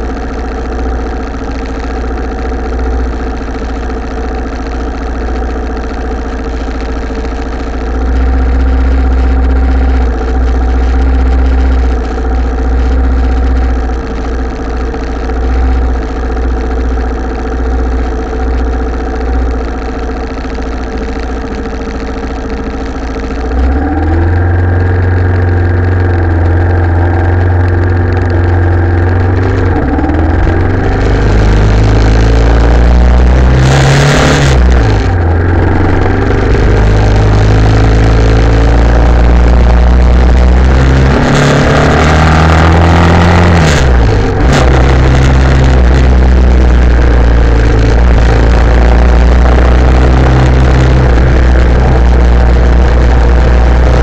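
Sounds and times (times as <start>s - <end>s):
motorcycle engine idling and revving: 0.0s - 54.0s
loud rushing noise: 40.1s - 54.0s.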